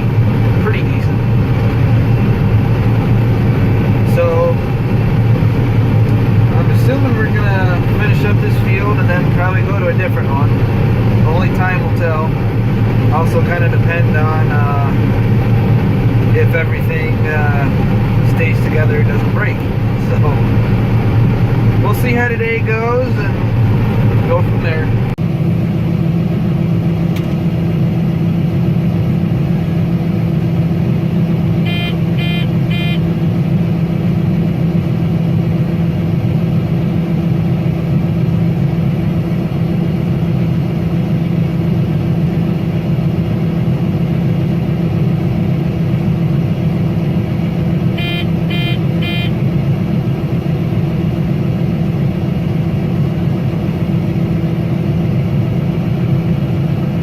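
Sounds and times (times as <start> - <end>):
combine harvester engine hum: 0.0 - 57.0
electronic warning beeps: 31.7 - 33.1, 48.0 - 49.4.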